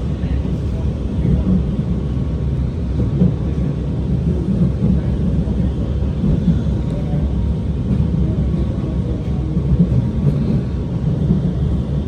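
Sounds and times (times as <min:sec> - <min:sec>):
metro train rumble on rails: 0:00.0 - 0:12.0.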